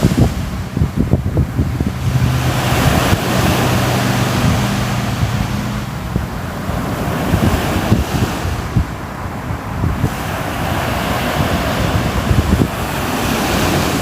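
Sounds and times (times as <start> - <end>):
low steady hum: 0.0 - 7.2
sea waves washing in: 0.0 - 14.0
wind buffeting microphone: 0.0 - 14.0.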